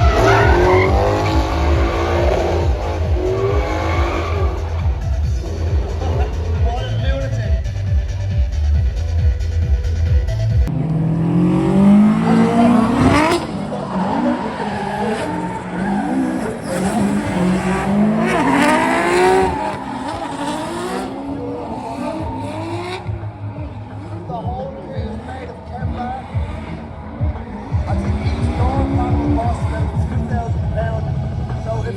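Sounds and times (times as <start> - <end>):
tyre squeal: 0.0 - 4.9
dance music: 0.0 - 14.6, 15.2 - 31.9
car engine revving: 0.0 - 31.9.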